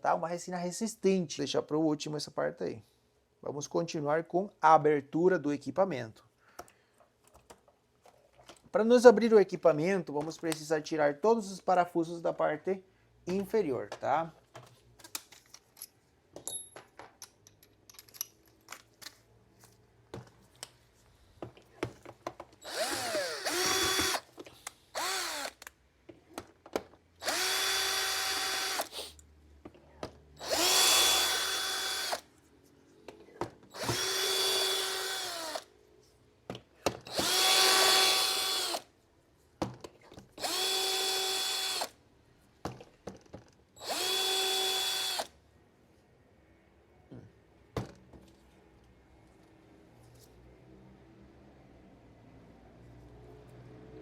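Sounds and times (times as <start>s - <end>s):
electric screwdriver whining: 22.6s - 24.3s, 25.0s - 25.7s, 27.2s - 29.2s, 30.4s - 32.3s, 33.7s - 35.7s, 37.1s - 38.8s, 40.4s - 42.0s, 43.8s - 45.3s.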